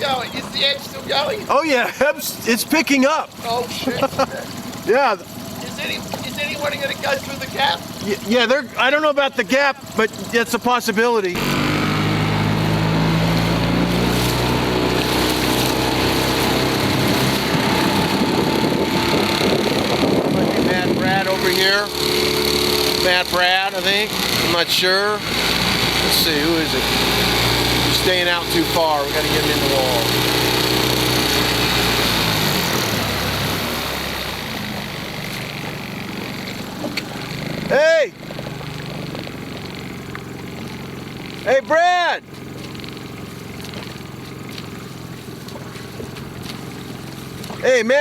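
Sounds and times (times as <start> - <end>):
motorboat engine running: 0.0 - 48.0
steady rushing noise: 15.2 - 29.5.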